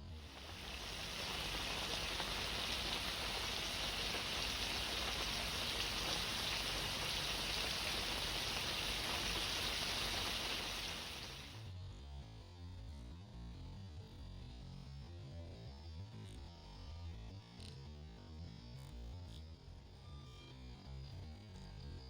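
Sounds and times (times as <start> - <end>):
fire crackling and hissing: 0.0 - 11.6.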